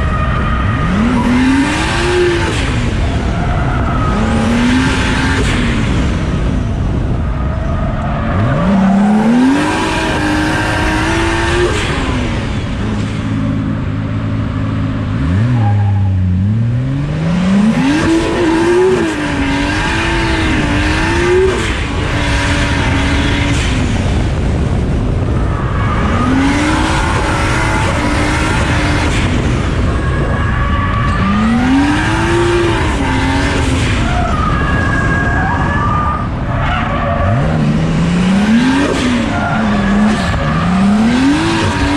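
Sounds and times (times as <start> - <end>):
tyres squealing and skidding: 0.0 - 6.2, 7.0 - 13.5, 14.6 - 16.4, 25.3 - 41.9
car engine revving hard: 0.7 - 3.1, 8.3 - 13.0, 15.0 - 34.0, 37.1 - 41.9.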